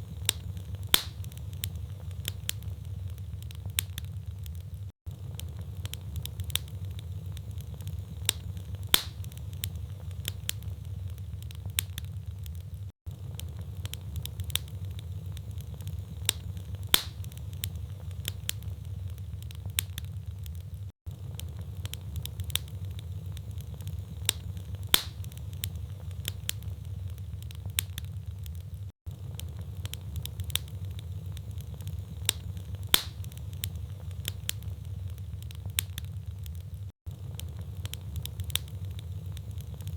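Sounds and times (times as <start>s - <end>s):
low rumble of flame: 0.0s - 39.9s
wood fire crackling: 0.0s - 39.9s
logs popping: 0.1s - 4.7s, 7.6s - 9.6s, 15.6s - 17.6s, 23.6s - 25.6s, 31.5s - 33.6s.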